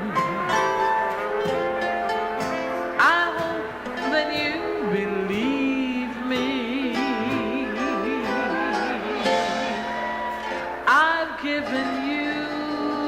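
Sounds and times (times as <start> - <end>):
woman singing jazz: 0.0 - 1.9, 2.5 - 13.0
jazz band playing: 0.0 - 11.1.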